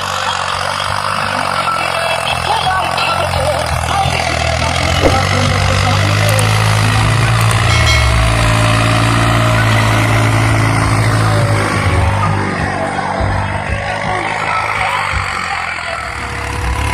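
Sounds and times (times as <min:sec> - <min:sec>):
tractor diesel engine running: 0:00.0 - 0:16.9.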